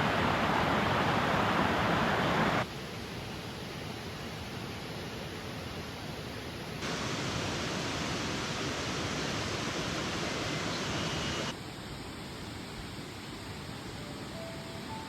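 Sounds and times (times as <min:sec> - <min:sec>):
mountain stream rushing: 0:00.0 - 0:03.0, 0:06.8 - 0:11.6.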